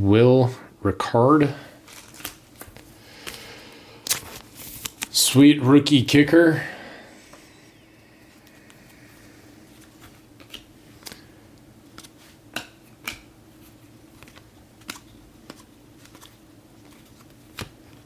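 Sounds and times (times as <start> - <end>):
faint steady hum: 0.0 - 18.0
trading cards clicking and snapping: 1.9 - 3.4, 10.0 - 11.2, 11.9 - 13.3, 14.1 - 18.0.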